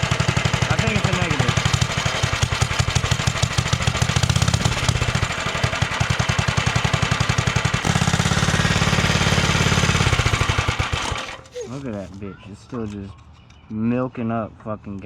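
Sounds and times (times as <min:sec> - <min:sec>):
small engine putter: 0:00.0 - 0:12.9.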